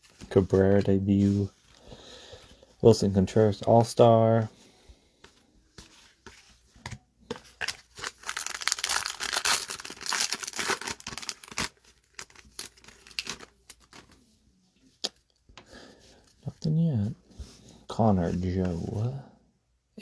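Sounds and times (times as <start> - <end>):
wrapper tearing and crinkling: 7.6 - 14.2.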